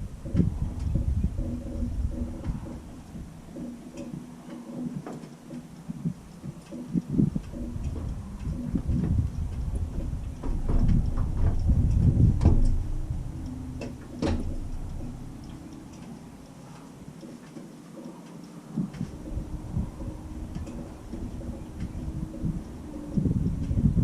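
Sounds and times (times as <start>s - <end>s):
wind buffeting microphone: 0.0s - 17.3s, 18.6s - 24.0s
faint steady hum: 0.0s - 24.0s
sharp knocks: 10.0s - 15.3s.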